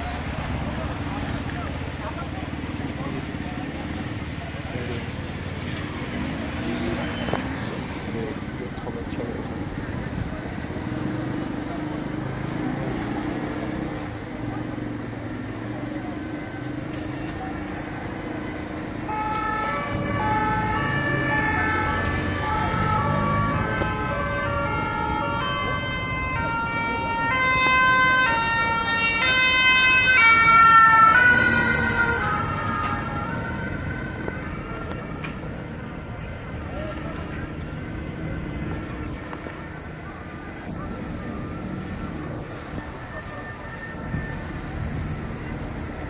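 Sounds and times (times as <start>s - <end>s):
street noise: 0.0s - 46.0s
two-tone siren: 18.5s - 35.4s, 37.9s - 45.0s.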